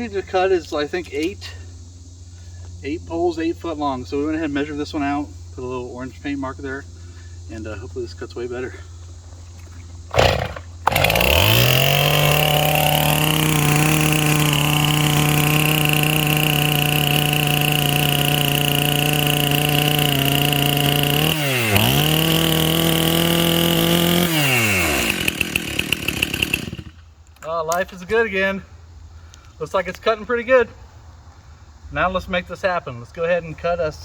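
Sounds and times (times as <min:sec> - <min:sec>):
chainsaw cutting wood: 0:10.1 - 0:27.1.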